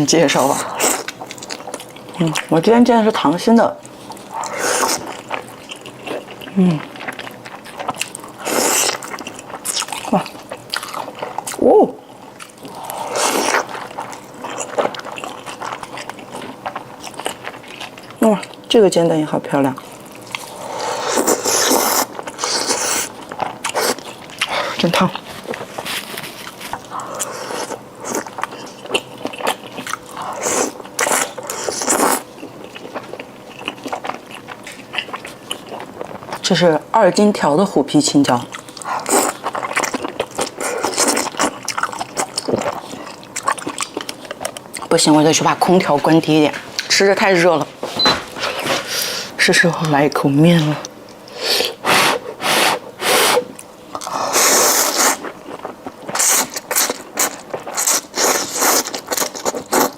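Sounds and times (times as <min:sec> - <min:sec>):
person chewing food: 0:00.4 - 0:02.5, 0:03.8 - 0:18.7, 0:19.8 - 0:36.4, 0:38.5 - 0:45.0, 0:50.8 - 0:59.9
person slurping noodles: 0:20.5 - 0:23.1, 0:51.3 - 0:55.2.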